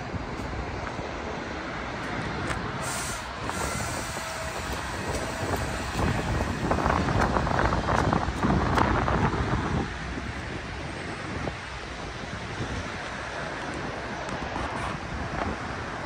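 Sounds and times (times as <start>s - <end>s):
train rumbling on rails: 0.0s - 16.0s
sharp clicks of train wheels: 2.0s - 9.6s.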